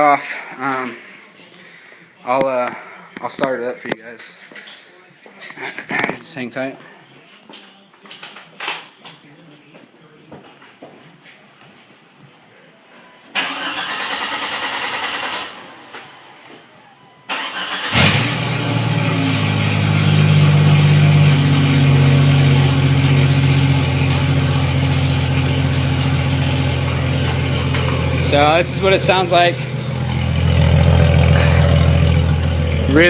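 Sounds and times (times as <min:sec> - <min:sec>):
car starter cranking: 0:13.4 - 0:15.9, 0:17.3 - 0:19.0
car engine idling loudly: 0:17.9 - 0:33.0.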